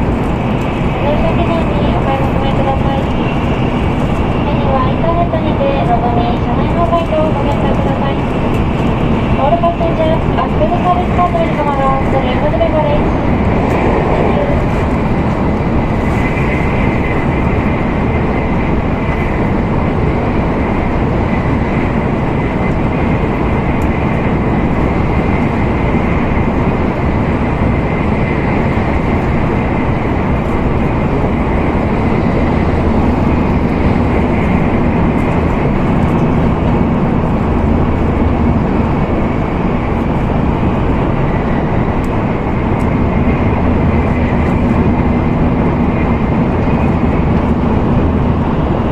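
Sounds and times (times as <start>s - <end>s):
train wind and rolling noise: 0.0s - 48.9s.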